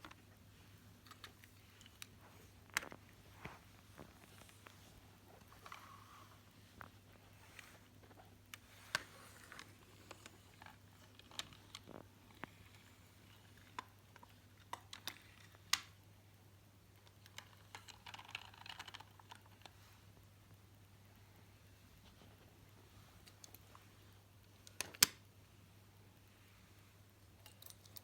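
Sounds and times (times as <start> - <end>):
faint steady hum: 0.0 - 28.0
toy vehicles clicking and tapping: 17.0 - 19.7, 27.3 - 28.0.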